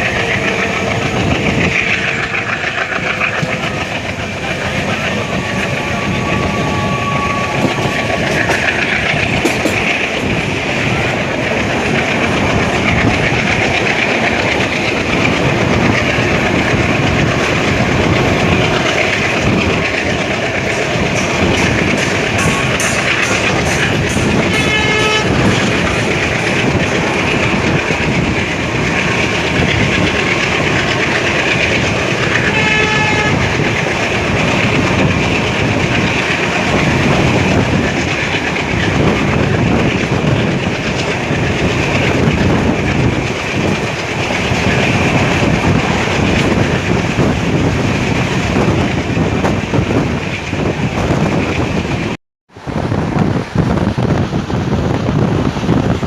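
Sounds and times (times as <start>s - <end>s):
train wheels rumbling on rail: 0.0s - 56.0s
train horn blasts: 5.3s - 8.1s, 22.4s - 26.2s, 32.4s - 33.5s.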